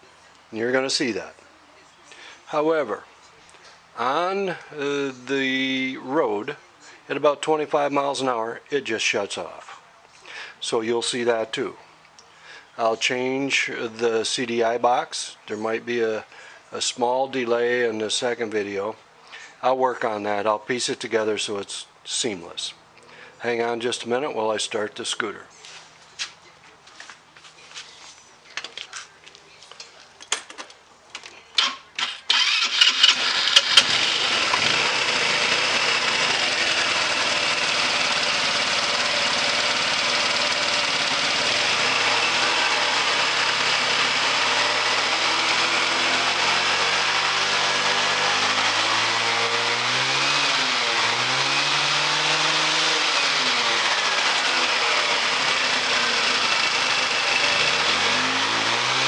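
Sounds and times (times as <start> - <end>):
scooter starter clicks: 31.6 - 36.2
scooter engine running: 32.3 - 59.0.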